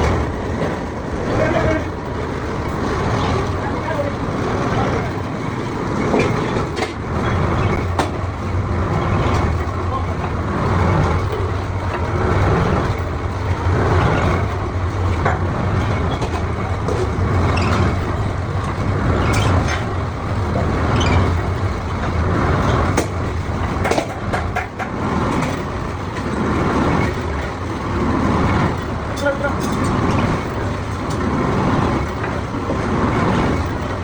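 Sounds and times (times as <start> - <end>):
workshop machinery hum: 0.0 - 34.0.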